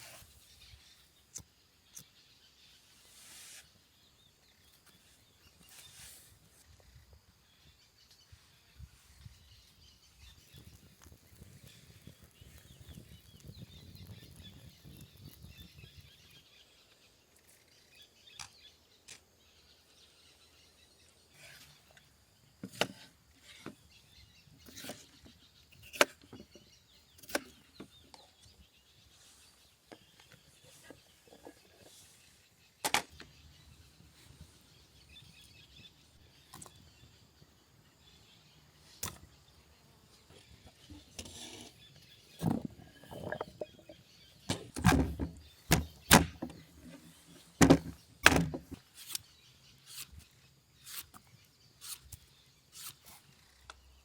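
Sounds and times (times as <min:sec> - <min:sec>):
faint birdsong: 0:00.0 - 0:54.0
sharp cracks and knocks: 0:32.8 - 0:33.3, 0:44.4 - 0:46.7, 0:47.6 - 0:49.3.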